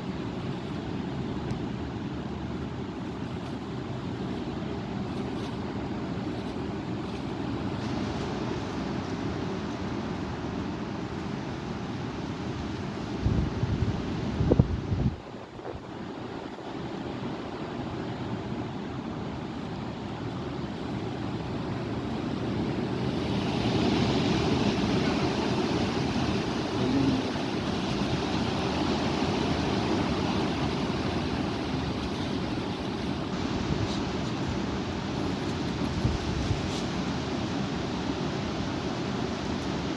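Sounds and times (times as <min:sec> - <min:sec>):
strong wind buffeting microphone: 0:12.8 - 0:17.7, 0:22.7 - 0:39.9.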